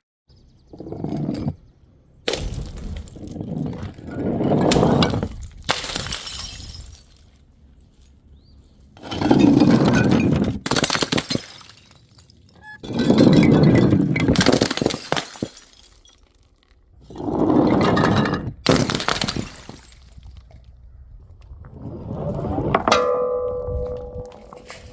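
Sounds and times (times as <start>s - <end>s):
glass bottles smashing: 2.3s - 3.7s, 4.3s - 7.3s, 9.1s - 16.7s, 17.3s - 20.5s
glass shards clinking: 4.4s - 7.3s.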